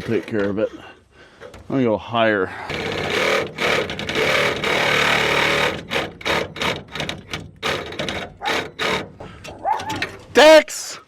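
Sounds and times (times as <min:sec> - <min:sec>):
reciprocating saw cutting metal: 0:02.7 - 0:10.1.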